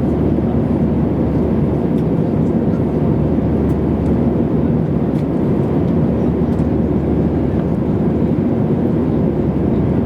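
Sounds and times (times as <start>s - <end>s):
jet engine and airflow roar: 0.0s - 10.0s.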